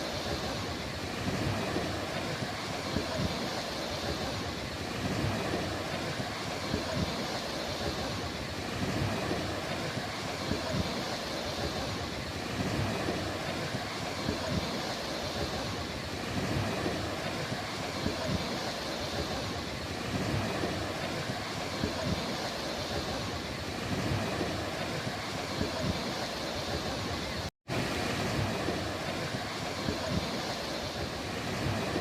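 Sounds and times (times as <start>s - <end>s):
sea waves washing onto beach: 0.0s - 32.0s
wind rumbling on microphone: 0.0s - 32.0s.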